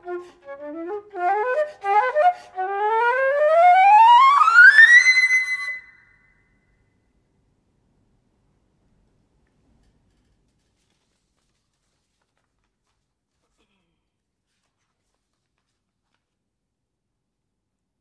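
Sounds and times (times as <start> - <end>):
solo flute: 0.0 - 6.3.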